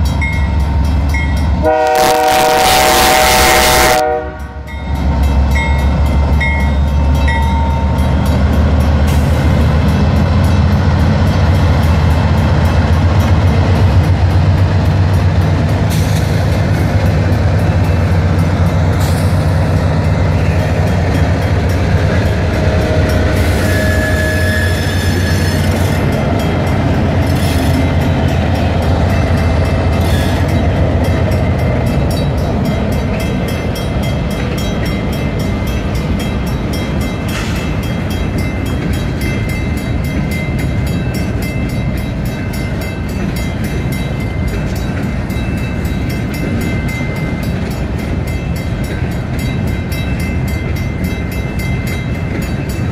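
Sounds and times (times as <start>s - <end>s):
diesel locomotive engines droning: 0.0s - 52.9s
rumble of wheels on rail: 0.0s - 52.9s
faint high wheel squeal: 23.4s - 26.1s.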